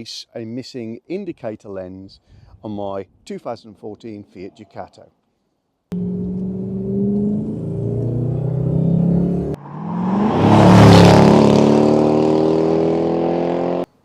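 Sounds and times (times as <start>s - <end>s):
car engine revving: 5.9s - 13.9s.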